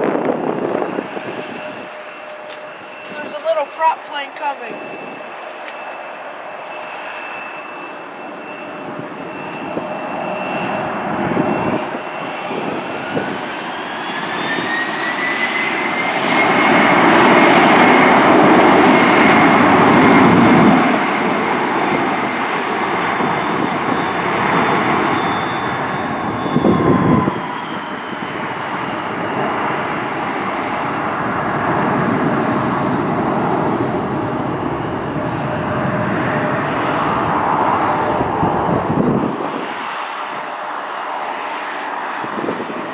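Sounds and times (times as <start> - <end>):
jet airliner engines roaring: 0.0 - 42.9.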